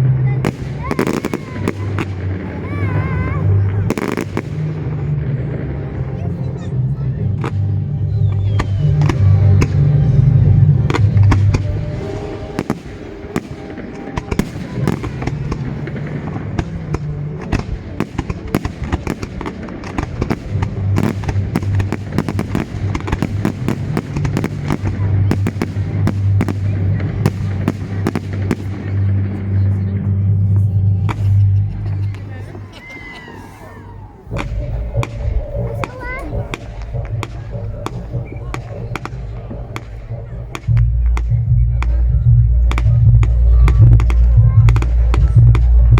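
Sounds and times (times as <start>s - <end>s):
fireworks cracking: 0.0s - 30.0s, 34.2s - 45.9s
music with deep bass: 0.0s - 32.8s, 34.2s - 45.9s.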